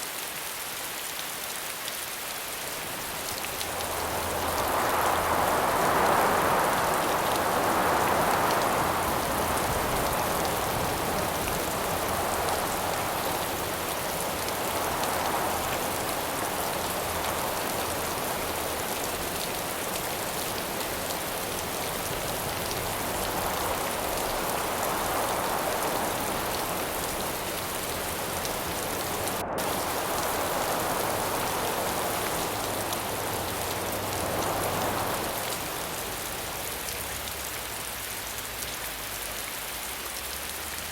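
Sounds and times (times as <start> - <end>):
steady rain falling: 0.0 - 40.9
wind gusts: 1.9 - 40.0.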